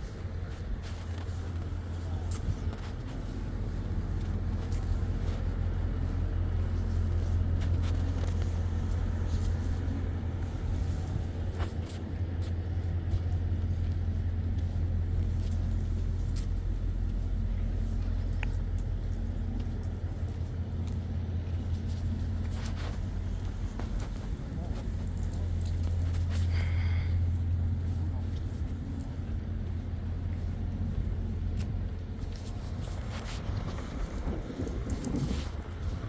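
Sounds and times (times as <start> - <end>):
truck engine idling: 0.0 - 36.0.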